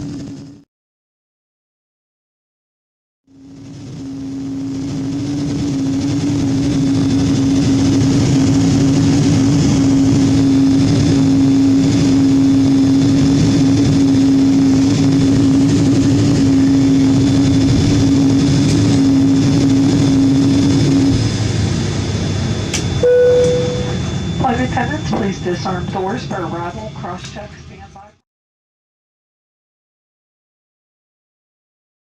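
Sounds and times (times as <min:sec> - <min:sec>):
airplane cabin engine hum: 0:00.0 - 0:00.6, 0:03.3 - 0:28.2.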